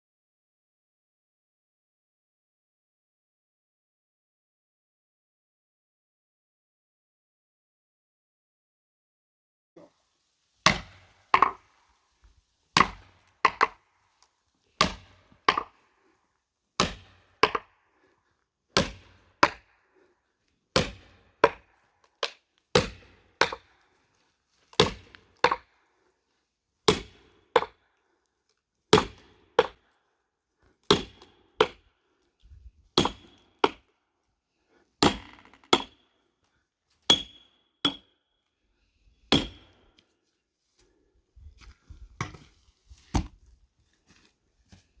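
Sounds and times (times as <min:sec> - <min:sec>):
hammer striking axe head: 0:10.7 - 0:11.6, 0:12.8 - 0:13.8, 0:14.8 - 0:15.7.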